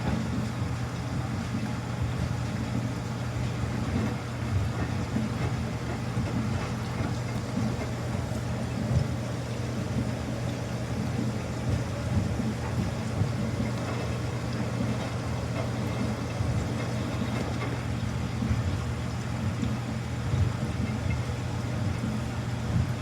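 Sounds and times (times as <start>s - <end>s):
washing machine humming: 0.0s - 23.0s.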